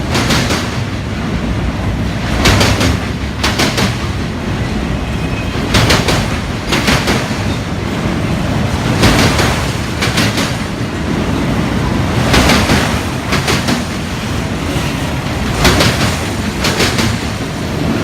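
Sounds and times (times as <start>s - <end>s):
rumble of train wheels on rail: 0.0s - 18.0s
wheels clicking over rail joints: 12.1s - 18.0s.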